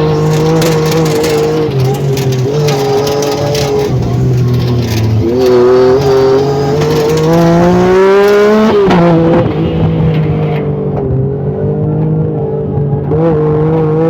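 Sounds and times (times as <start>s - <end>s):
engine accelerating: 0.0s - 14.0s.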